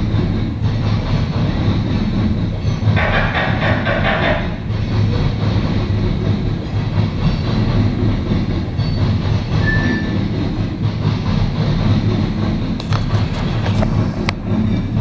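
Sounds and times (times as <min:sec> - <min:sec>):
steel wheels clattering on rails: 0:00.0 - 0:15.0
train rumbling past: 0:00.0 - 0:15.0
faint squeal: 0:09.6 - 0:10.2.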